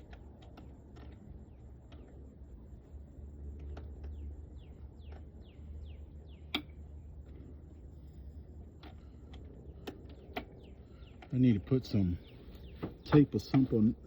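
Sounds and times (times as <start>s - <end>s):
low steady rumble: 0.0s - 14.0s
small bird chirping: 3.6s - 8.3s, 9.1s - 14.0s.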